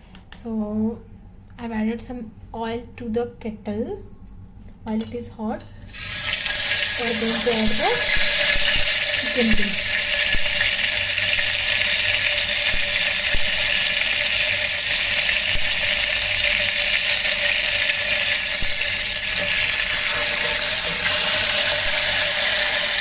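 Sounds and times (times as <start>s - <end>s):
chicken sizzling in hot oil: 5.9s - 23.0s.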